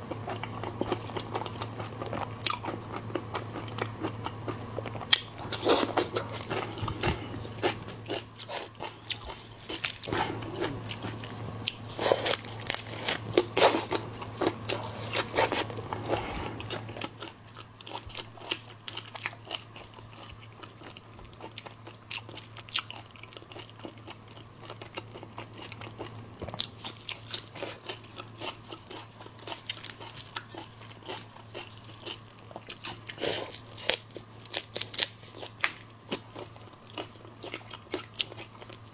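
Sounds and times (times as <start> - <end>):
steady low hum: 0.0 - 18.2
crunching and chewing seafood: 0.0 - 38.9.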